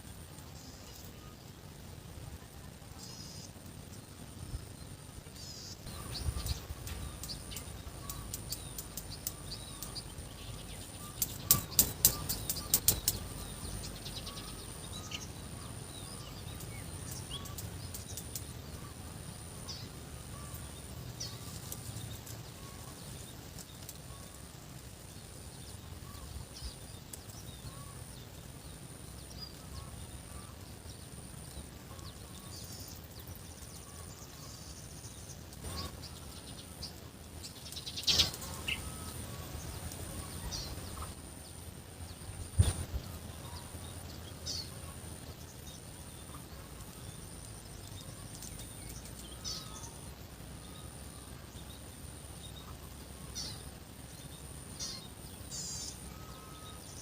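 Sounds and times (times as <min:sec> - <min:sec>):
birds chirping: 0:00.0 - 0:57.0
loud sharp clicks: 0:11.2 - 0:13.4.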